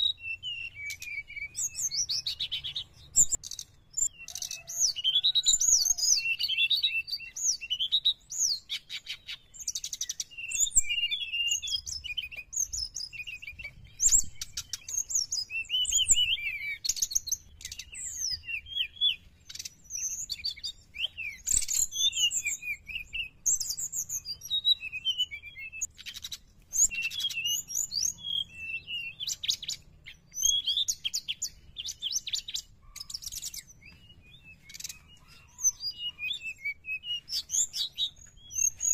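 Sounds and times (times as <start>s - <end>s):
bird singing whistled notes: 0.0s - 38.9s
sharp bird clicks: 1.8s - 4.8s, 19.5s - 21.9s, 25.8s - 28.1s, 29.2s - 33.7s.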